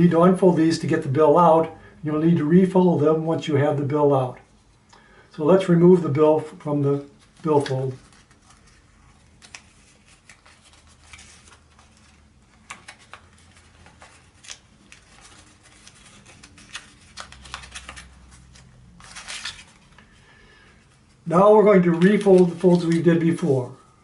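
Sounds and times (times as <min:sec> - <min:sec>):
paper rustling and crackling: 0:06.8 - 0:20.2, 0:20.8 - 0:23.8.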